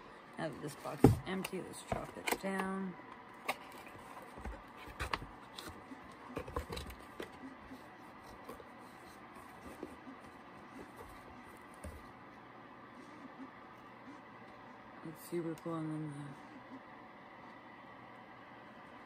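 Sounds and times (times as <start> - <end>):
clicks taps and rustles: 0.8 - 12.2.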